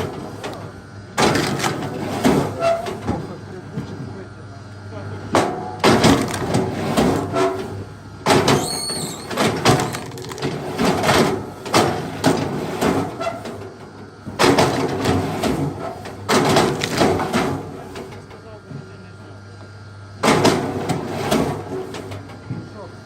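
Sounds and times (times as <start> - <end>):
wood splitting knocks and cracks: 1.2 - 2.5, 5.4 - 7.3, 9.3 - 13.1, 16.2 - 17.7
short squeak: 8.6 - 9.4.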